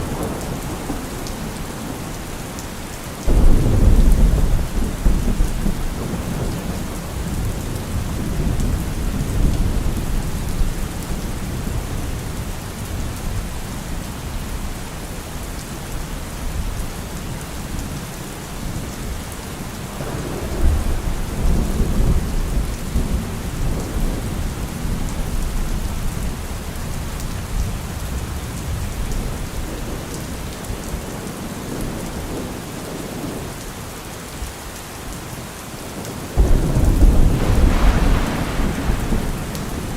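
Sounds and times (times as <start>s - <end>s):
low rolling thunder: 0.0s - 2.2s, 3.2s - 13.6s, 20.0s - 31.0s, 36.4s - 39.9s
heavy rain on a car roof: 0.0s - 39.9s.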